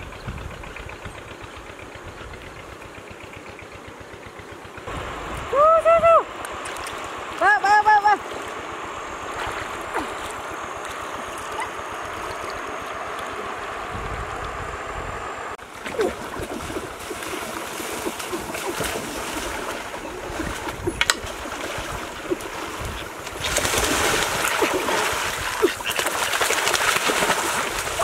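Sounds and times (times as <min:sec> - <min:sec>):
river water sloshing around wader: 0:00.0 - 0:14.5, 0:15.6 - 0:28.0
small water splashes: 0:06.4 - 0:13.5, 0:15.6 - 0:28.0.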